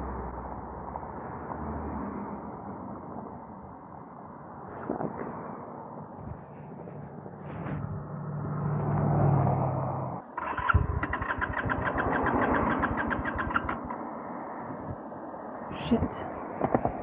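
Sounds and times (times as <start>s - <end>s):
electric starter cranking: 10.4s - 13.7s
motorcycle engine running: 10.4s - 14.1s.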